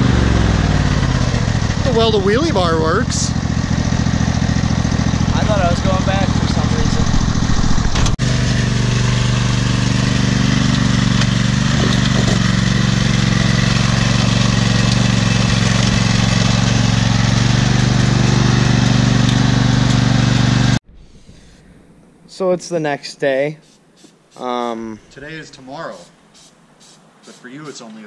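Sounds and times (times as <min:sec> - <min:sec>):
tractor engine running: 0:00.0 - 0:20.8.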